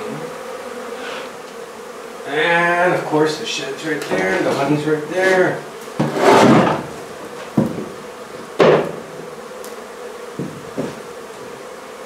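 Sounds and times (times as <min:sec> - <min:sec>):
honey bees buzzing: 0:00.0 - 0:12.0
sharp knocks: 0:06.0 - 0:08.0, 0:08.6 - 0:09.2, 0:10.4 - 0:11.0.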